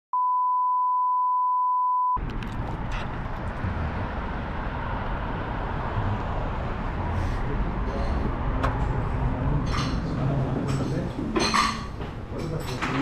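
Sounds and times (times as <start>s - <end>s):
electronic beep tone: 0.2s - 2.2s.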